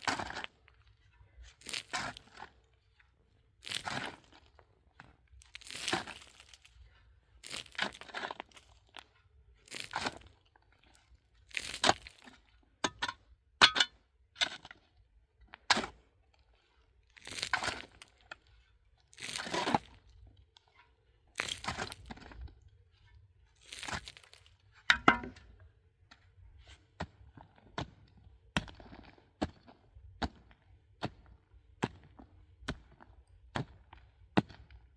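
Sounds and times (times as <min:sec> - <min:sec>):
scraping crunches of earth: 0:00.0 - 0:02.7, 0:03.6 - 0:04.6, 0:05.4 - 0:06.8, 0:07.4 - 0:10.4, 0:11.0 - 0:12.5, 0:17.1 - 0:18.5, 0:19.1 - 0:20.2, 0:21.4 - 0:25.4
pickaxe striking rock: 0:24.9 - 0:25.4.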